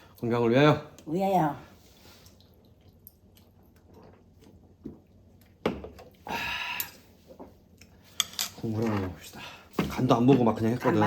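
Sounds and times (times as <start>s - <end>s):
eating and drinking sounds: 1.7s - 11.0s.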